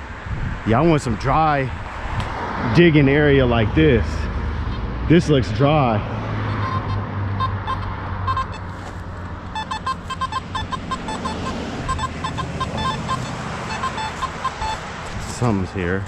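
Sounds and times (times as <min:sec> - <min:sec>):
metal detector short beeps: 0:06.6 - 0:08.9, 0:09.5 - 0:14.8.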